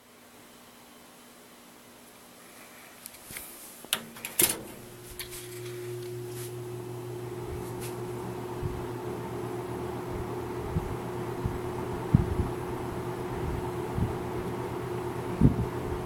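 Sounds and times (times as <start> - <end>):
fan motor humming: 3.0 - 16.0.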